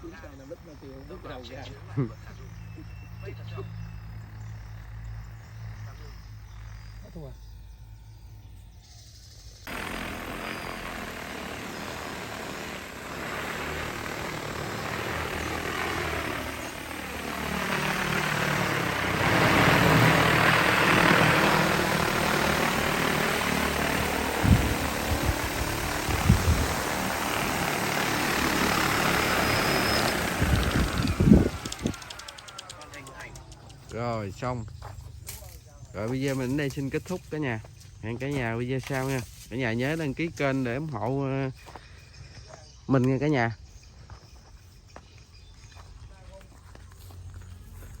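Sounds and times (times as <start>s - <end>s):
drone rotors whirring: 0.4s - 34.6s.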